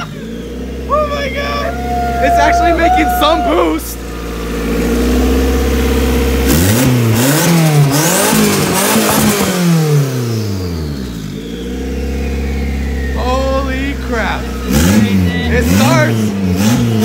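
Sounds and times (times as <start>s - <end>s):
car engine idling and revving: 0.0s - 17.0s
turbo whistle: 11.0s - 14.7s.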